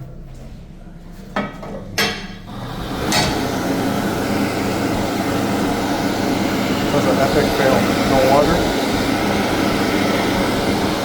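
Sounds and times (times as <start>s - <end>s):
electric hand dryer blowing: 2.5s - 11.0s.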